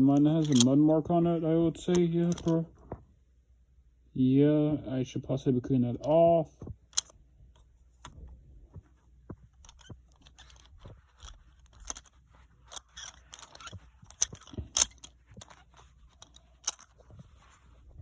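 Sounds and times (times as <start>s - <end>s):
toy trains clicking and scraping: 0.0s - 0.8s, 1.8s - 2.6s, 6.9s - 7.2s, 9.5s - 17.8s.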